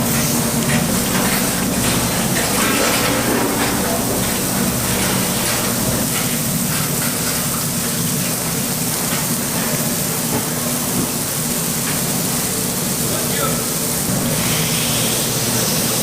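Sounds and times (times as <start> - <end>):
steady hissing noise: 0.0 - 16.0
low hum: 0.8 - 6.7.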